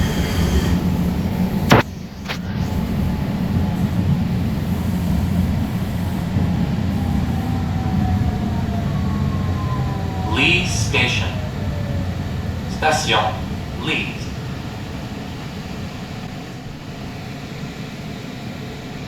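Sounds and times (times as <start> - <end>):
train rumble: 0.0 - 19.0
sharp clicks: 1.7 - 2.4
faint falling whine: 6.8 - 17.8.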